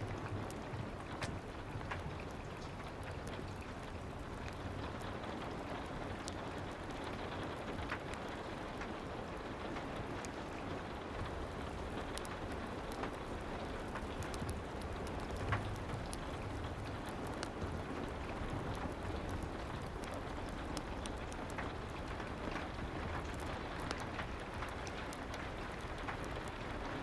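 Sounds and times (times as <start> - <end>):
faint clicks and ticks: 0.0 - 27.0
soft rain: 0.0 - 27.0.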